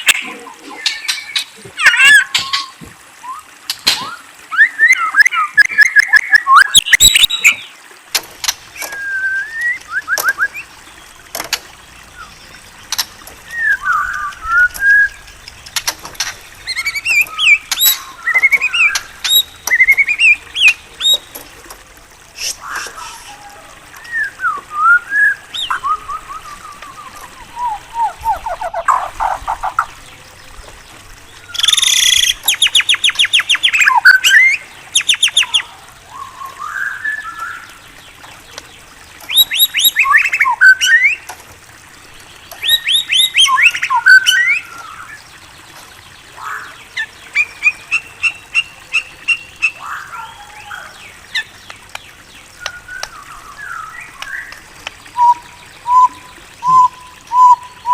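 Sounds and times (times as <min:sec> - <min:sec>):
bird singing whistles and trills: 0:00.8 - 0:07.7, 0:08.8 - 0:10.7, 0:13.5 - 0:15.2, 0:16.6 - 0:21.4, 0:22.4 - 0:29.1, 0:31.5 - 0:37.7, 0:39.3 - 0:41.2, 0:42.5 - 0:45.2, 0:52.6 - 0:57.9.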